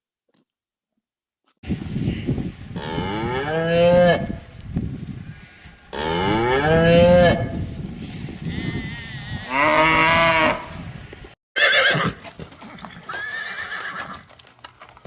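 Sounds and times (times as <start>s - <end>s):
long farm animal calls: 8.4s - 10.9s.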